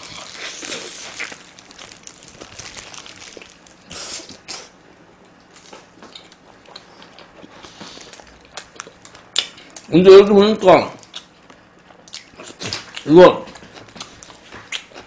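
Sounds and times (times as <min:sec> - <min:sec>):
chewing mouth sounds: 0:12.0 - 0:15.0.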